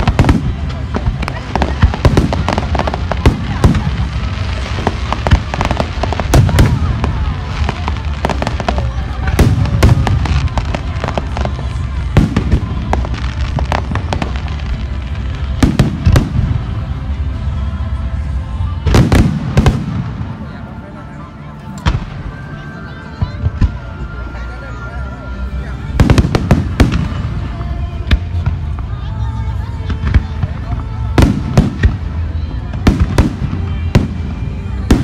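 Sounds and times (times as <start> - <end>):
fireworks bursting with sharp bangs: 0.0 - 20.8, 21.7 - 24.1, 25.8 - 35.0
low rumble and crackle: 0.0 - 24.0.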